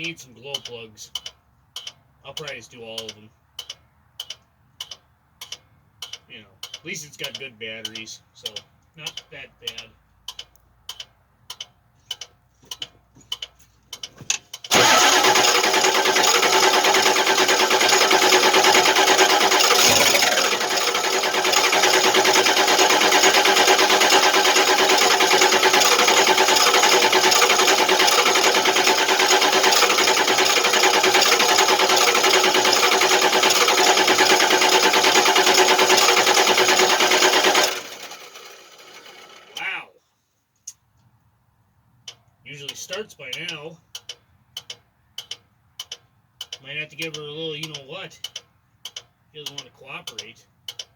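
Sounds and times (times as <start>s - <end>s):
diesel engine cranking: 0.0s - 11.1s, 13.4s - 39.7s
sharp clicks: 0.0s - 38.9s, 42.1s - 50.9s.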